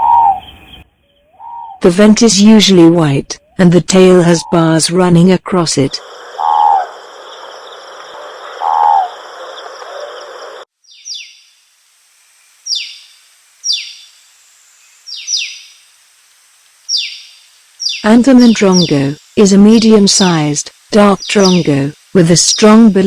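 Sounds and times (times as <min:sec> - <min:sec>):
low bird calls: 0:00.0 - 0:01.8, 0:06.0 - 0:11.5
high-pitched background drone: 0:05.7 - 0:10.7.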